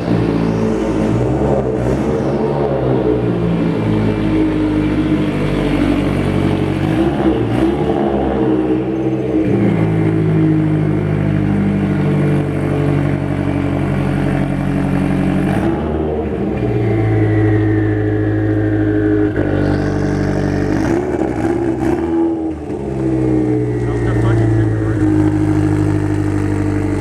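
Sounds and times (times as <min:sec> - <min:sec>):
car engine running: 0:19.6 - 0:27.0.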